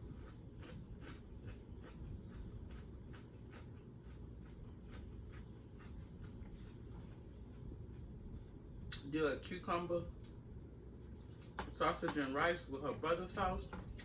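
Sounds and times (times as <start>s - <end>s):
chewing food: 0.0s - 9.0s.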